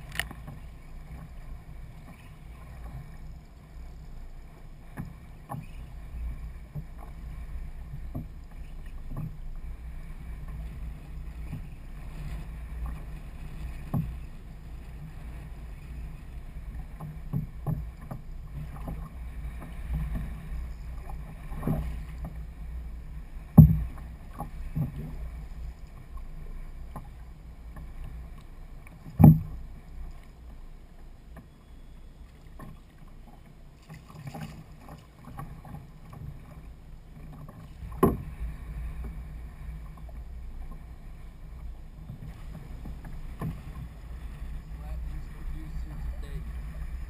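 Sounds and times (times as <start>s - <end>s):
wind and water rumble: 0.0s - 47.0s
sharp knocks on kayak: 23.5s - 24.0s, 29.1s - 29.6s, 37.8s - 38.3s.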